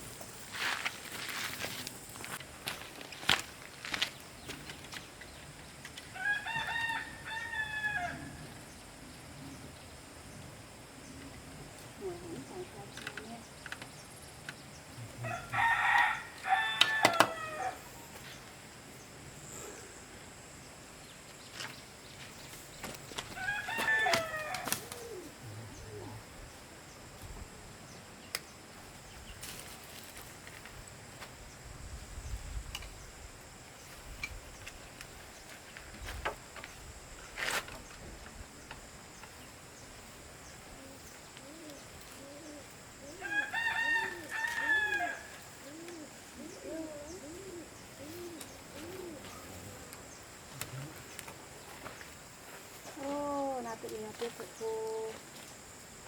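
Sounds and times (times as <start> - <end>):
rooster crowing: 6.1 - 8.6, 15.2 - 17.8, 23.3 - 24.8, 43.2 - 45.6.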